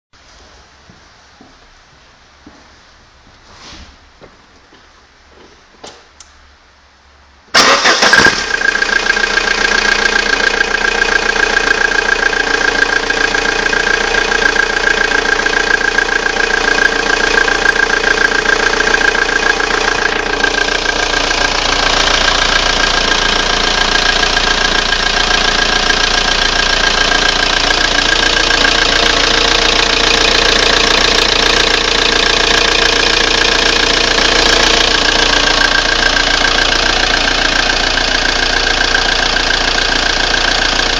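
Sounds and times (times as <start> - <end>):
diesel car engine running: 7.5 - 40.9
steady high tone: 8.7 - 24.8.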